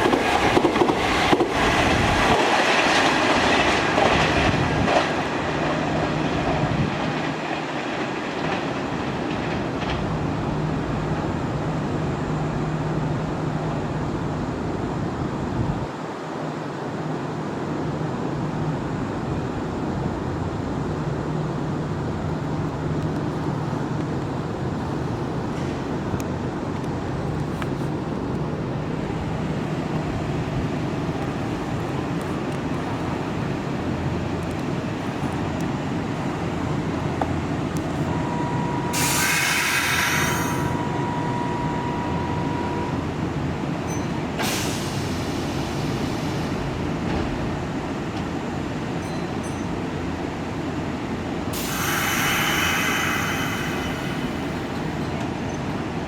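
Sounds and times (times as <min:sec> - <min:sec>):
electric train rumbling: 0:00.0 - 0:56.0
steady high tone: 0:37.8 - 0:44.2
short bursts of hissing: 0:38.9 - 0:40.8, 0:51.6 - 0:54.6.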